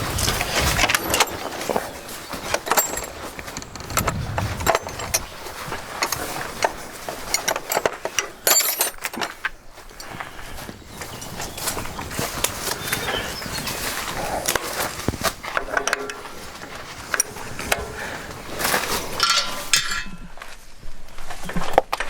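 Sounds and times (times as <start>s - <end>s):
wrenches clinking on metal bolts: 0.2s - 4.0s, 6.0s - 10.3s, 15.4s - 20.4s.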